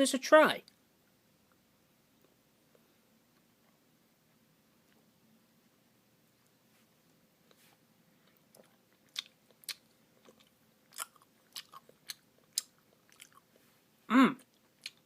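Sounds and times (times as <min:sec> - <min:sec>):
mouth smacks and chewing: 0:08.2 - 0:13.6, 0:14.4 - 0:15.0.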